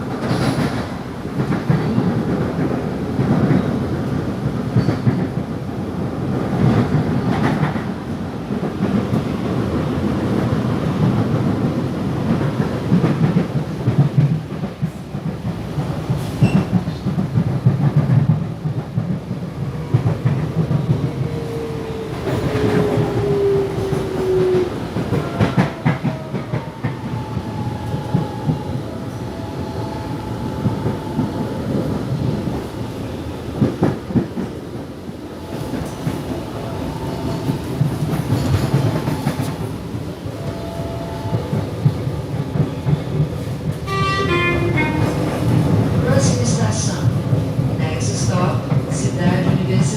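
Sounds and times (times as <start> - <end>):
train wheel and track rumble: 0.0 - 49.9.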